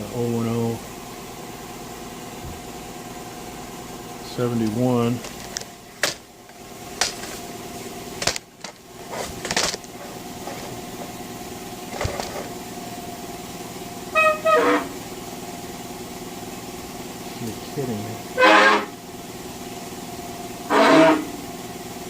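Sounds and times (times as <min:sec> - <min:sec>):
steady hum: 0:00.0 - 0:22.0
honk-like squeal: 0:14.1 - 0:15.0, 0:18.4 - 0:18.9, 0:20.7 - 0:21.4.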